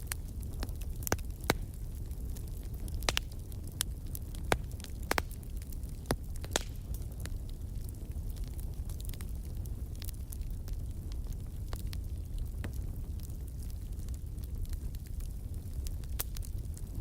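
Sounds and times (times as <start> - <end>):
low rumble of burning: 0.0 - 17.0
wood fire crackling and popping: 0.0 - 17.0.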